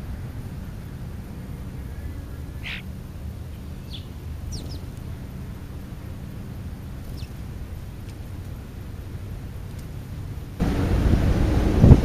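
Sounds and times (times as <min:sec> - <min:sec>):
steady low rumble: 0:00.0 - 0:12.0
short high bird calls: 0:01.6 - 0:05.1.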